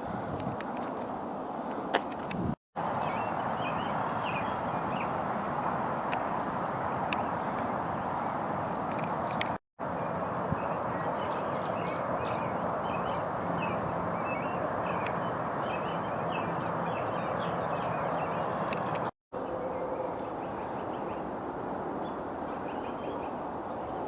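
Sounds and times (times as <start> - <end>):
small birds chirping: 2.8 - 6.0, 6.9 - 19.1.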